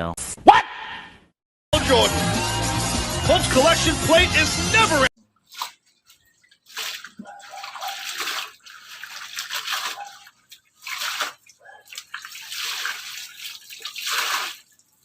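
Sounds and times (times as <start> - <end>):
washing machine water sloshing: 5.2 - 15.0.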